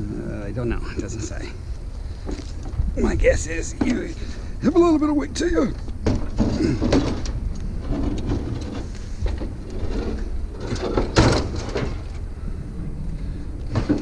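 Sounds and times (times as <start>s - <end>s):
steady low rumble: 0.0s - 14.0s
car trunk lid scraping and knocking: 6.0s - 12.1s.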